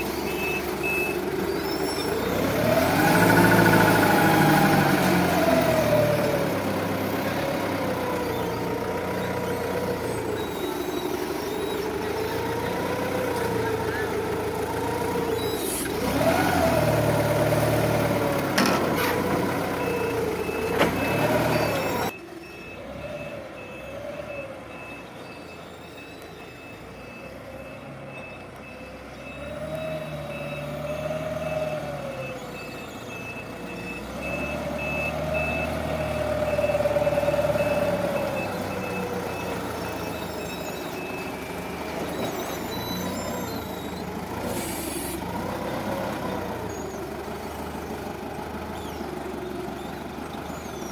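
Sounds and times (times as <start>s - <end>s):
forklift engine revving: 0.0s - 50.9s
reversing beeper short beeps: 19.7s - 45.2s.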